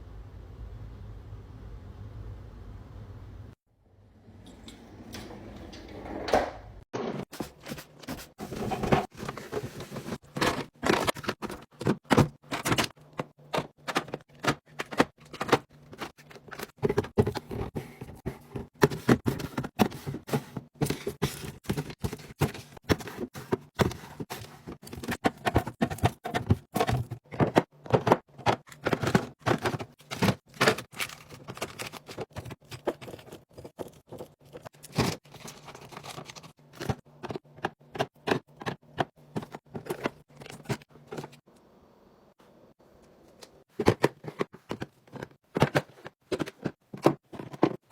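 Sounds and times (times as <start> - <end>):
snack packs knocking and rustling: 10.0 - 41.4.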